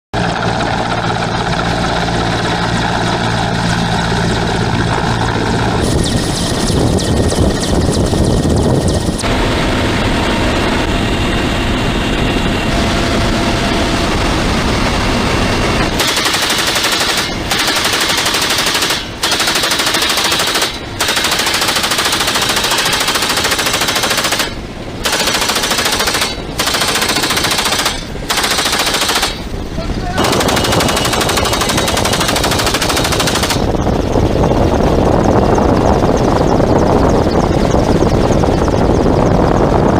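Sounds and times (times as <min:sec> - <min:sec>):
helicopter rotor and engine: 0:00.1 - 0:39.9
machine gun firing rapid bursts: 0:16.0 - 0:29.5, 0:30.2 - 0:33.8.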